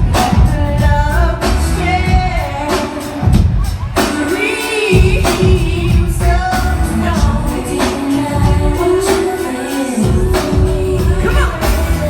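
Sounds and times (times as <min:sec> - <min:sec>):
drum hits: 0:00.0 - 0:09.4
live band with heavy bass: 0:00.0 - 0:12.0
person singing: 0:00.0 - 0:12.0.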